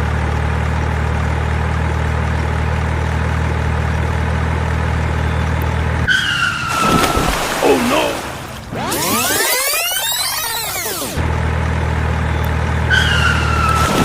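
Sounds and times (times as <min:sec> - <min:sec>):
heavy vehicle engine idling: 0:00.0 - 0:06.7, 0:11.2 - 0:13.8.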